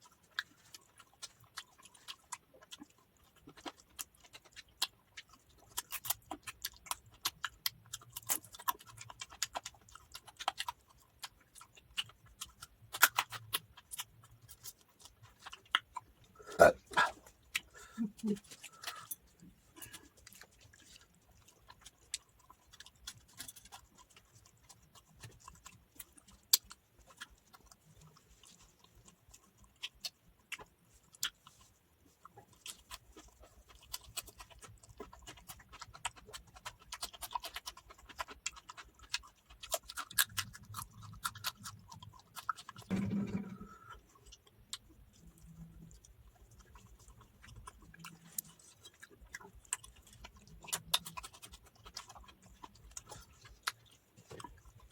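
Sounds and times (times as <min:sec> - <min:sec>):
person chewing food: 0:00.0 - 0:54.9
low sound from eater: 0:42.9 - 0:44.0.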